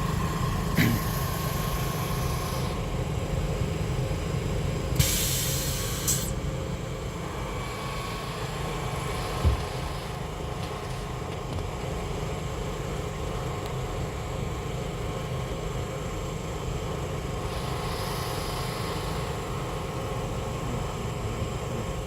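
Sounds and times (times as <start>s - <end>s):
steady tonal hum: 0.0s - 21.8s
railcar low rumble: 0.0s - 22.0s
hiss: 0.8s - 2.8s, 5.0s - 6.4s, 17.4s - 19.6s.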